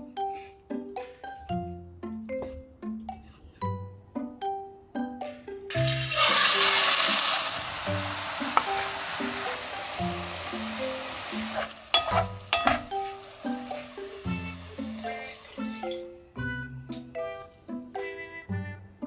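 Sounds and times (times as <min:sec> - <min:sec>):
chicken sizzling in hot oil: 0:05.7 - 0:16.0
wooden spatula scraping: 0:11.3 - 0:15.3.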